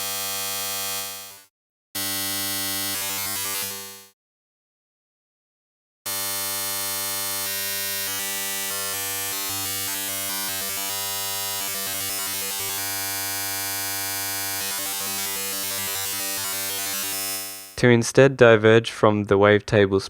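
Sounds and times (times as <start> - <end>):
synthesizer sustained note: 7.9 - 17.8.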